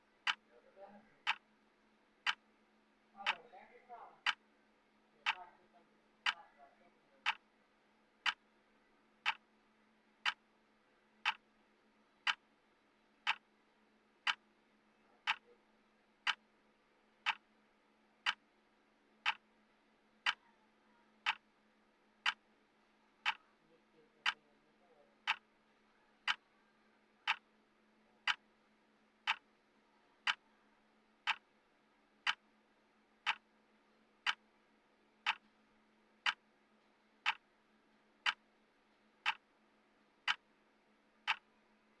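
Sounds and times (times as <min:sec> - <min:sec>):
faint low hum: 0:00.0 - 0:42.0
clock ticking: 0:00.2 - 0:00.5, 0:01.2 - 0:01.5, 0:02.2 - 0:02.5, 0:03.2 - 0:03.5, 0:04.2 - 0:04.4, 0:05.2 - 0:05.5, 0:06.2 - 0:06.4, 0:07.2 - 0:07.5, 0:08.2 - 0:08.4, 0:09.2 - 0:09.5, 0:10.2 - 0:10.5, 0:11.2 - 0:11.5, 0:12.2 - 0:12.5, 0:13.2 - 0:13.5, 0:14.2 - 0:14.5, 0:15.2 - 0:15.6, 0:16.2 - 0:16.5, 0:17.2 - 0:17.6, 0:18.2 - 0:18.5, 0:19.2 - 0:19.5, 0:20.2 - 0:20.5, 0:21.2 - 0:21.5, 0:22.2 - 0:22.5, 0:23.2 - 0:23.5, 0:24.2 - 0:24.4, 0:25.2 - 0:25.5, 0:26.2 - 0:26.4, 0:27.2 - 0:27.5, 0:28.2 - 0:28.5, 0:29.2 - 0:29.5, 0:30.2 - 0:30.5, 0:31.2 - 0:31.5, 0:32.2 - 0:32.5, 0:33.2 - 0:33.6, 0:34.2 - 0:34.5, 0:35.2 - 0:35.6, 0:36.2 - 0:36.5, 0:37.2 - 0:37.6, 0:38.2 - 0:38.5, 0:39.2 - 0:39.5, 0:40.2 - 0:40.6, 0:41.2 - 0:41.6.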